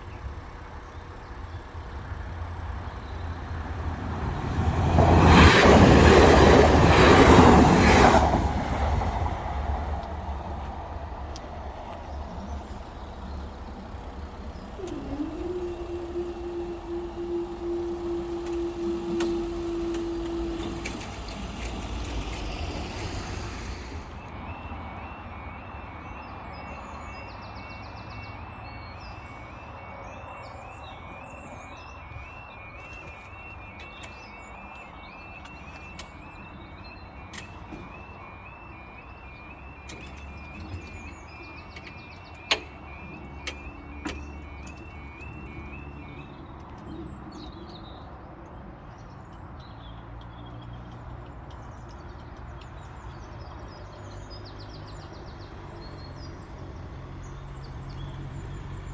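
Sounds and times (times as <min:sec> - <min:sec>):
birdsong: 0:00.0 - 0:58.9
traffic rumble: 0:00.0 - 0:58.9
level crossing alarm warbling: 0:02.5 - 0:26.2, 0:30.5 - 0:46.8.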